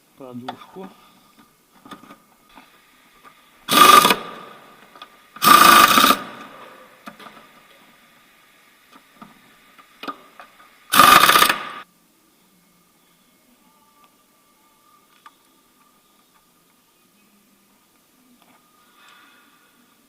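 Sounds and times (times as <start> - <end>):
impact wrench running in bolts: 3.7 - 4.5, 5.4 - 6.6, 10.9 - 11.8.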